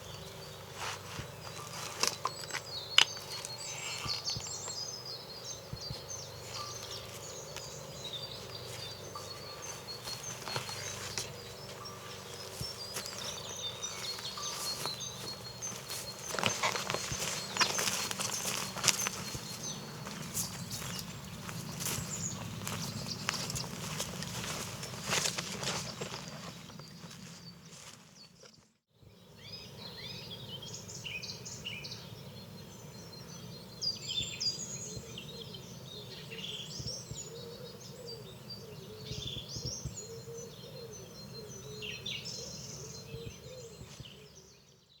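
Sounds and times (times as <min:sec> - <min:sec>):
rustling: 0:00.0 - 0:04.6, 0:06.4 - 0:28.5
small birds chirping and singing: 0:00.0 - 0:45.0.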